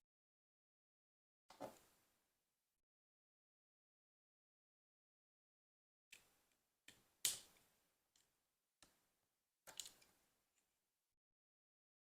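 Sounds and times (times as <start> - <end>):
plastic bricks clicking together: 9.7 - 10.2.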